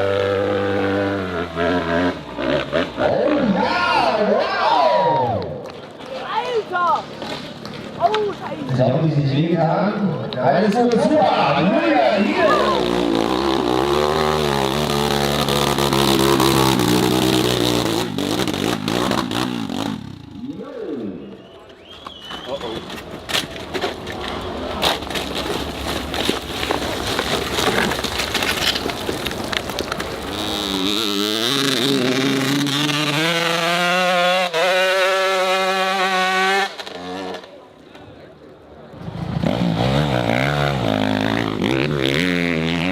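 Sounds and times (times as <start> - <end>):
dirt bike engine revving: 0.0 - 4.4, 11.2 - 21.3, 30.1 - 37.6, 39.0 - 42.9.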